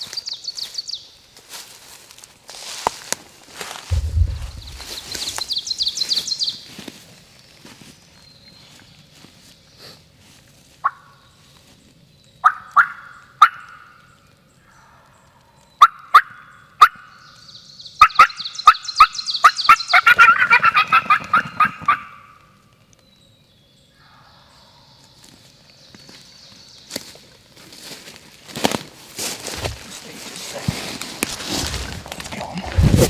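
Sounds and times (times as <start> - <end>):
turkey gobble: 12.4 - 13.7, 18.0 - 22.3
turkey clucks and yelps: 19.0 - 22.2.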